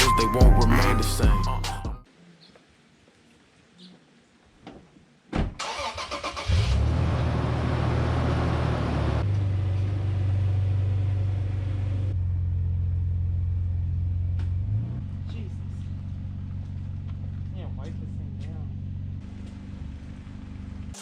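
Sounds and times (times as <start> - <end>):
vehicle engine cranking and starting: 5.6 - 8.4
engine idling: 15.2 - 21.0.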